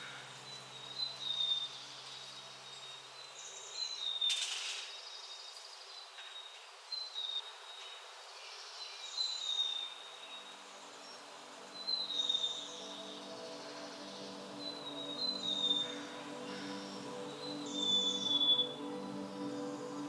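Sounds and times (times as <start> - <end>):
brief rustle: 4.2 - 5.0
bird whistling high notes: 17.5 - 18.8.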